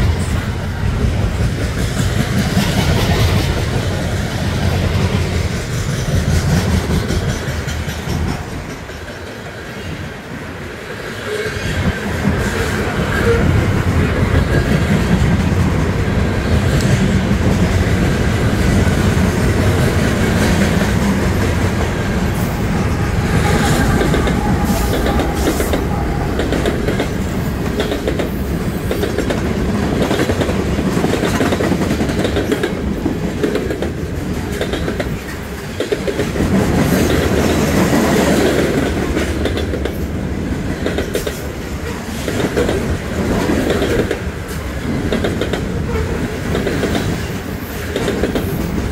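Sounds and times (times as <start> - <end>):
steel wheels rumbling on rail: 0.0 - 48.9
wheels clacking over rail joints: 16.6 - 48.9.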